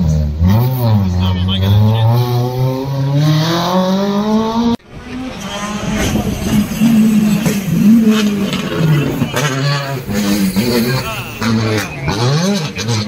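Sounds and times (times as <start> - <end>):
car engine accelerating hard: 0.0 - 13.0
rushing noise: 3.6 - 12.8.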